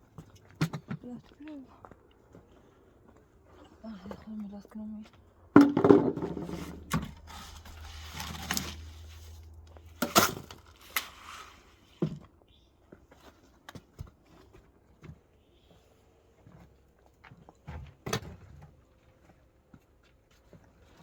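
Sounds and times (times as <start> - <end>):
masonry knocks: 5.6 - 7.0
scraping: 5.6 - 11.8.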